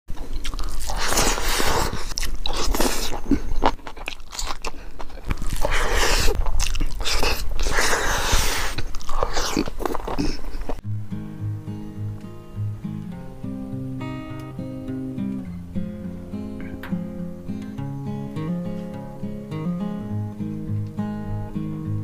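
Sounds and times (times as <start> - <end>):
person chewing food: 0.1 - 10.8.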